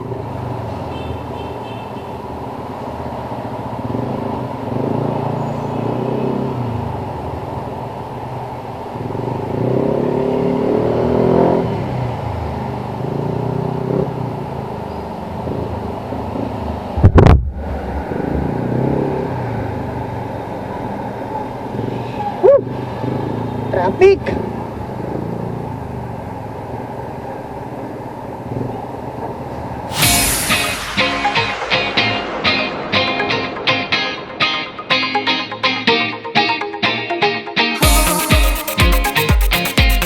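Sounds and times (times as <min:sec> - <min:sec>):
sudden loud low rumble: 0:16.9 - 0:20.0, 0:29.9 - 0:34.9.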